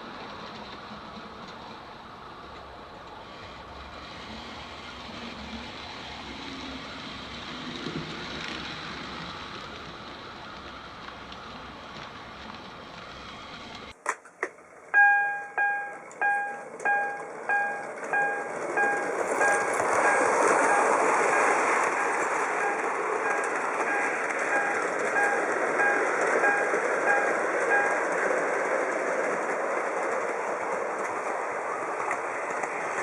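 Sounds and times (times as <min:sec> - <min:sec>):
model train running on track: 0:00.0 - 0:14.0, 0:14.6 - 0:33.0
bell-like ding: 0:15.0 - 0:28.0.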